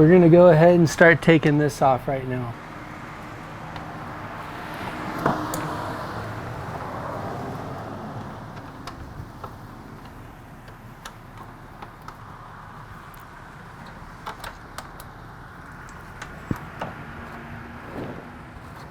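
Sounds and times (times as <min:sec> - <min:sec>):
allen key and fasteners clicking: 0:05.1 - 0:17.5.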